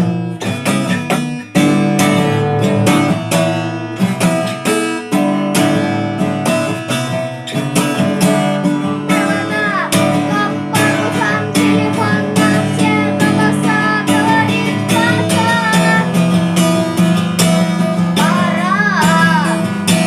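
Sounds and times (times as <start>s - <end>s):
acoustic guitar strumming: 0.0s - 20.0s
person singing: 7.5s - 20.0s.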